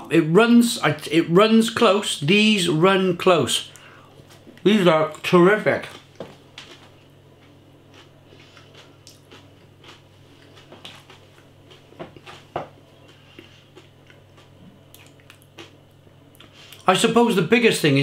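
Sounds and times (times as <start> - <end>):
man chewing crispy potatoes: 5.8 - 16.9.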